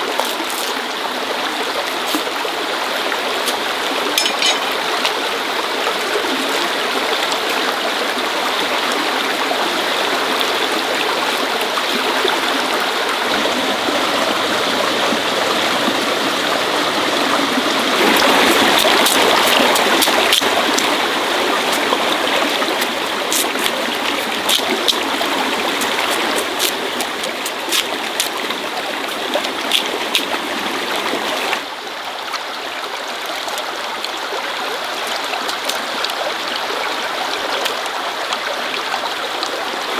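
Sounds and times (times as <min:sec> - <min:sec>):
water running: 0:01.5 - 0:05.6, 0:11.8 - 0:31.6.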